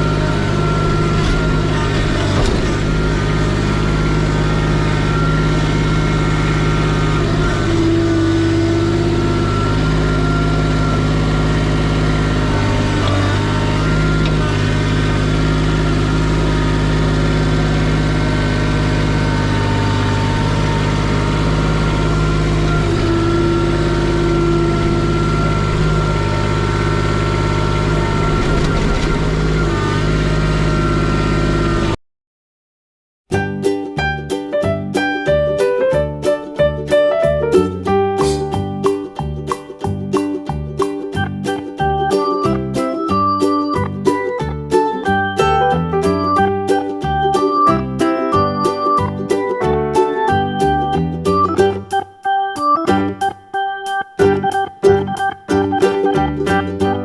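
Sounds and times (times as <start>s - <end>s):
higher engine tones: 0.0s - 32.0s, 34.0s - 57.0s
machine engine running: 0.0s - 32.0s.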